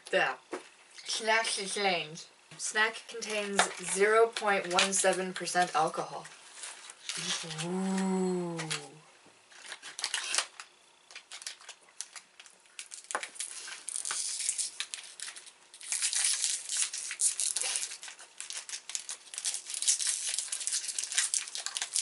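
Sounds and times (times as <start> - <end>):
plastic wrapper crackling and tearing: 9.6 - 22.0.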